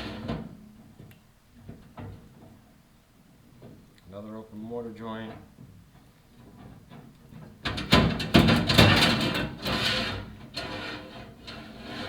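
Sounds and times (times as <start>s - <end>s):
camera scraping inside flue: 9.7s - 12.0s.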